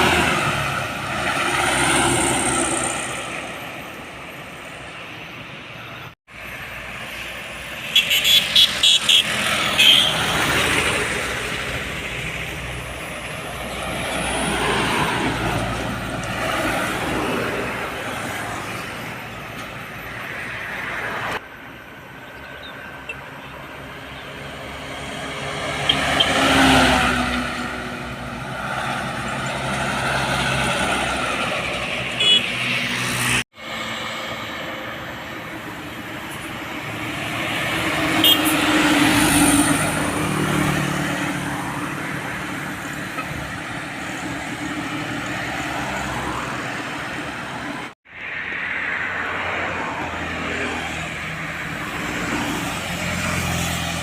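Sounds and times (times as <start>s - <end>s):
trucks passing: 0.0s - 54.0s
short horn blasts: 7.9s - 10.3s, 32.2s - 32.6s, 38.2s - 38.7s.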